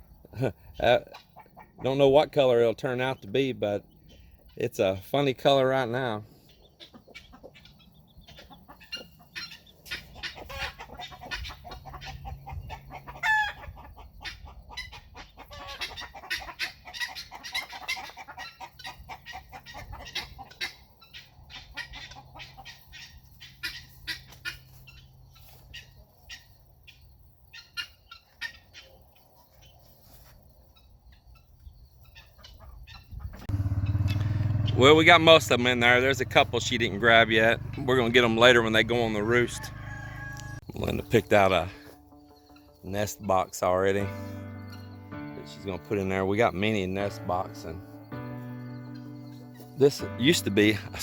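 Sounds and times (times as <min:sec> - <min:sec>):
chicks peeping: 0:00.1 - 0:51.0
hen clucking: 0:00.1 - 0:51.0
warbling chicken call: 0:37.8 - 0:40.6.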